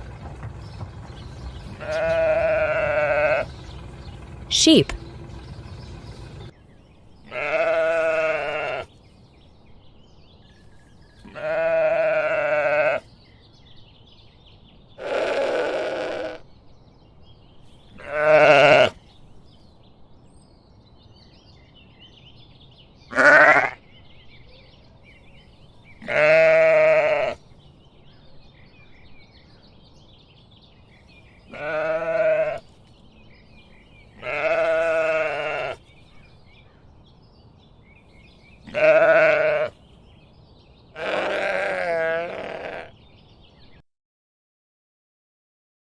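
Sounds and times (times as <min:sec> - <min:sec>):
sheep bleating: 0:00.0 - 0:06.5, 0:07.3 - 0:08.9, 0:11.2 - 0:13.0, 0:15.0 - 0:16.4, 0:18.0 - 0:19.0, 0:23.1 - 0:23.8, 0:26.0 - 0:27.4, 0:31.5 - 0:32.6, 0:34.2 - 0:35.8, 0:38.6 - 0:39.8, 0:41.0 - 0:42.9.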